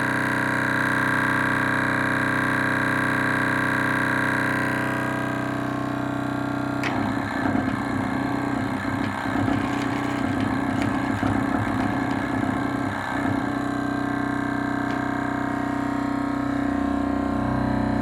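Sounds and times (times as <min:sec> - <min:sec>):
steady humming tone: 0:04.6 - 0:18.0
model engine rattling: 0:05.0 - 0:16.7.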